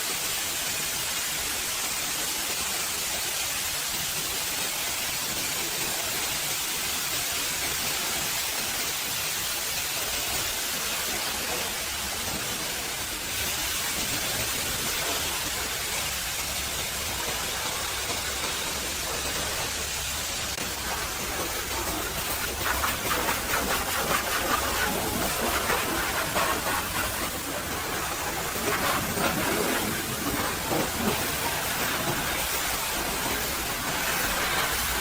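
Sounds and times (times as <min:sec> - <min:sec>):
pressure washer spraying: 0:07.6 - 0:35.0.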